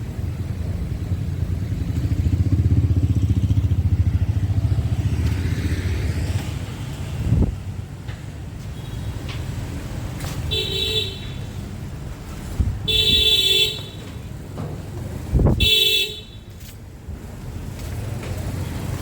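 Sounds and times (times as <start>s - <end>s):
passing engine surging: 0.0s - 7.8s
street traffic: 0.0s - 19.0s
vehicle horn honking: 10.5s - 11.5s, 12.8s - 14.1s, 15.5s - 16.5s.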